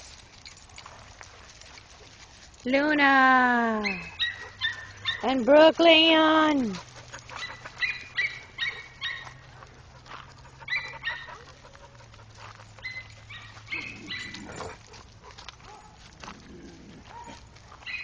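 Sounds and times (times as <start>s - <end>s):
dog yapping: 3.8s - 5.3s, 7.3s - 9.4s, 10.6s - 11.6s, 12.8s - 16.0s.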